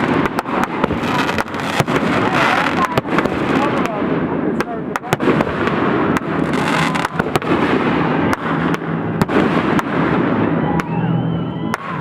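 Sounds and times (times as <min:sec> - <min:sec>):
fireworks crackling: 0:00.0 - 0:11.0
fireworks bangs: 0:00.0 - 0:12.0.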